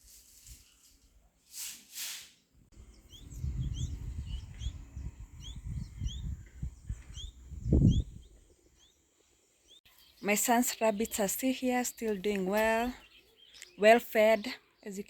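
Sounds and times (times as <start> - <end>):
brief hissing rushes: 1.5 - 2.4
small birds chirping: 2.7 - 15.0
low rumble: 2.8 - 8.4.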